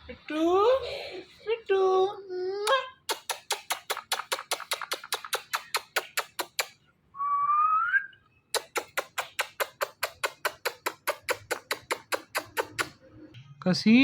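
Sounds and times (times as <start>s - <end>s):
parrot quick clicks: 3.1s - 6.8s
parrot rising whistle: 7.2s - 8.2s.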